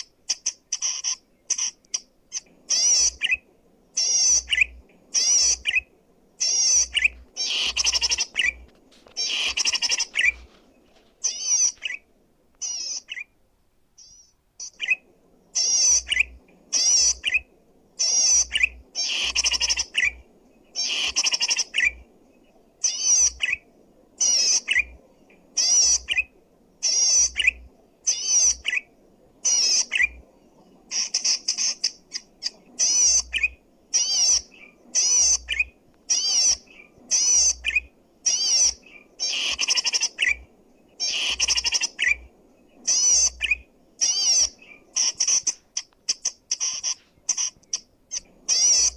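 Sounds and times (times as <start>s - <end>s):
bird singing rapid high phrases: 6.4s - 8.6s, 11.2s - 12.0s, 30.9s - 40.4s, 42.8s - 48.9s.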